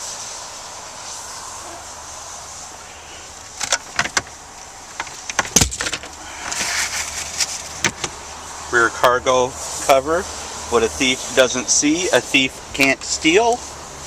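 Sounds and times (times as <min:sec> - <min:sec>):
steady hiss: 0:00.0 - 0:14.0
short scrape: 0:06.3 - 0:07.8.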